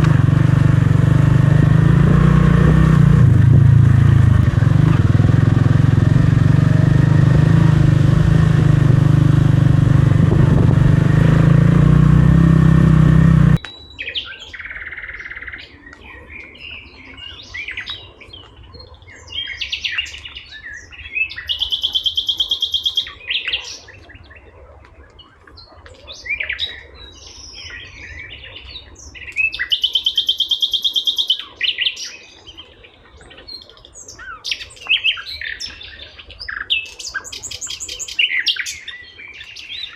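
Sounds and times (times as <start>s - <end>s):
motorcycle engine running: 0.0s - 13.6s
birds singing and chirping: 0.0s - 39.9s
loud high bird trills: 21.2s - 23.9s, 29.4s - 32.1s.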